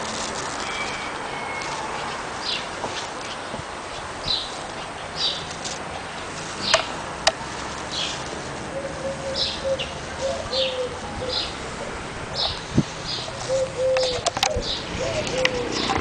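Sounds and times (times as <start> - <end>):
background hiss: 0.0 - 15.4
bird chirping: 0.6 - 6.9, 7.9 - 16.0
sharp clicks: 13.9 - 14.6.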